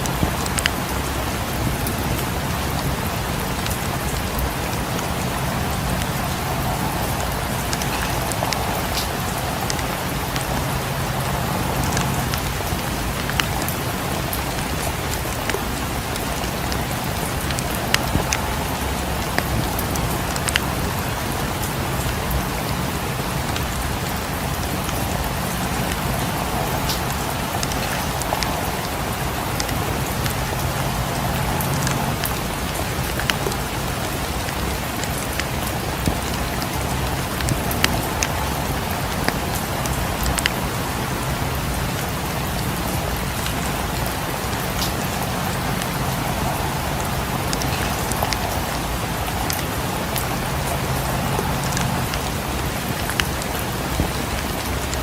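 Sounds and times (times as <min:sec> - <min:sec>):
fireplace crackling: 0:00.0 - 0:53.4
steady rain hissing: 0:00.0 - 0:55.0.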